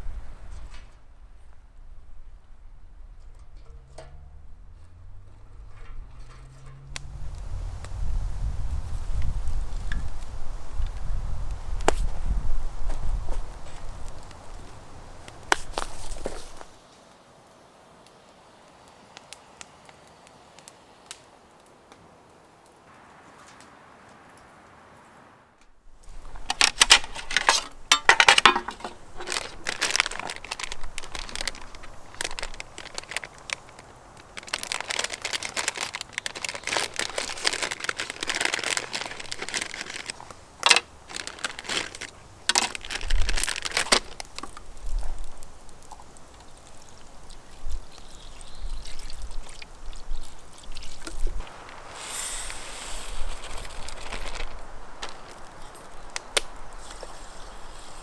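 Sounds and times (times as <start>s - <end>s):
rustling and crinkling: 3.2s - 17.2s, 26.0s - 58.0s
pouring hiss: 7.0s - 58.0s
clicks and knocks: 26.5s - 32.6s.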